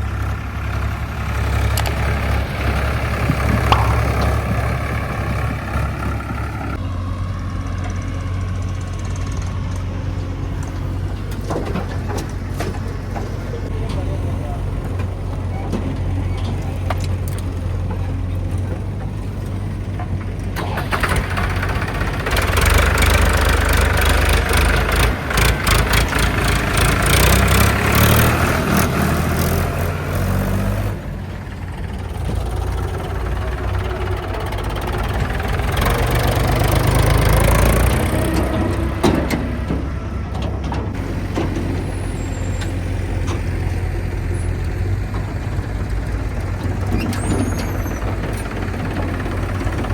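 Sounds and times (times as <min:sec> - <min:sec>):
heavy diesel engine revving: 0:00.0 - 0:49.9
clattering and rattling: 0:01.4 - 0:06.8.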